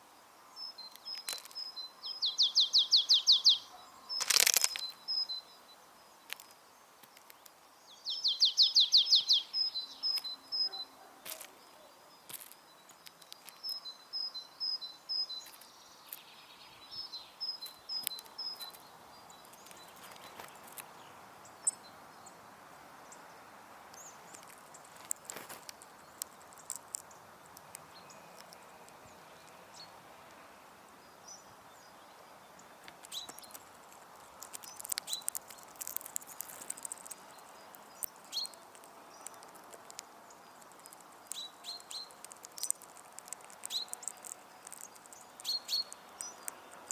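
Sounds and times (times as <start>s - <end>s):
faint outdoor background hiss: 0.0s - 46.9s
songbird singing two-pitched phrase: 0.6s - 5.7s, 7.9s - 11.0s
birds pecking on feeder: 24.0s - 29.6s, 32.9s - 46.9s.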